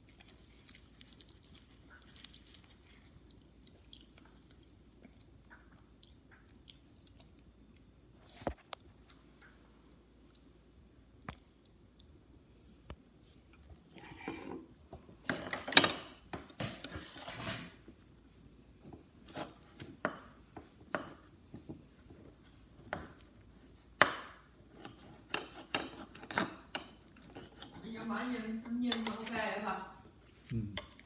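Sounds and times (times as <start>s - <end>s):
rustling and scraping: 14.0s - 18.1s
tableware taps and clicks: 15.2s - 17.6s.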